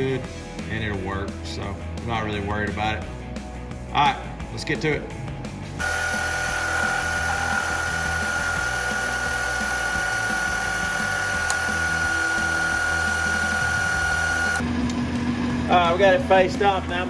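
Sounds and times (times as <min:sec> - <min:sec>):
metal lathe high-pitched whine: 0:05.8 - 0:14.6.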